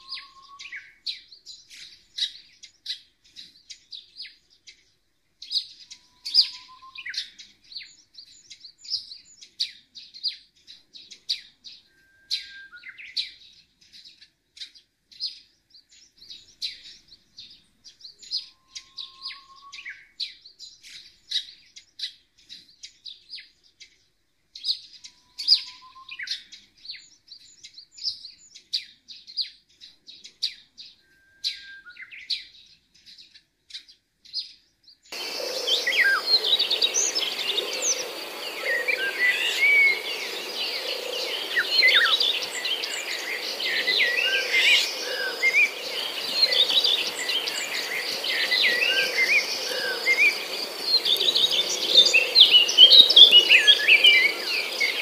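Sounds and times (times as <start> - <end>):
low bird whistle: 0.0 - 0.9, 6.1 - 7.2, 11.9 - 13.0, 18.4 - 20.0, 25.2 - 26.3, 31.0 - 32.1
small birds chirping: 0.0 - 55.0.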